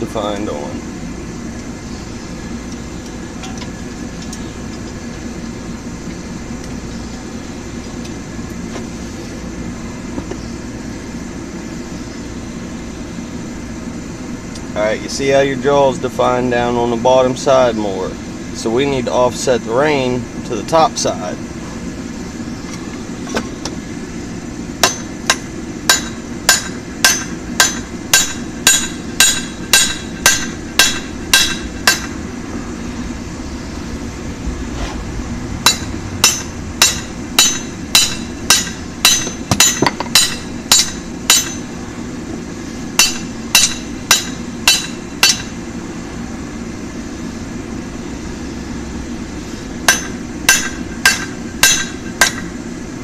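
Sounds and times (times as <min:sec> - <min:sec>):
steady hum: 0:00.0 - 0:53.0
hammer on hot steel on anvil: 0:24.8 - 0:32.2, 0:35.6 - 0:41.7, 0:43.0 - 0:45.6, 0:49.8 - 0:52.5.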